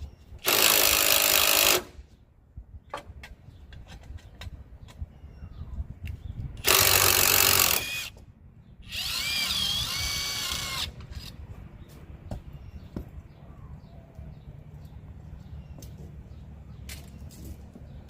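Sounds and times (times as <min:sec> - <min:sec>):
handheld power tool running: 0:08.9 - 0:10.9.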